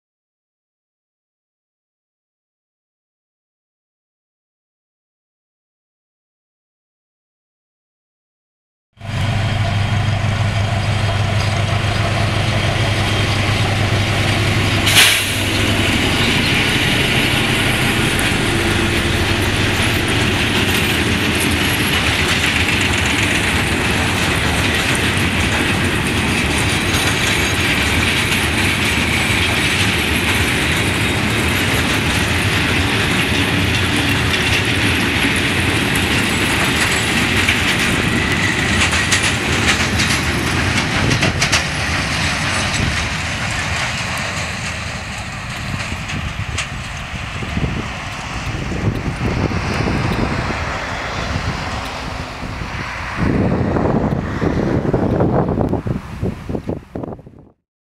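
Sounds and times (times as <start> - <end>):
diesel locomotive droning: 9.0 - 57.2
wagon wheels clattering on rails: 10.7 - 50.4.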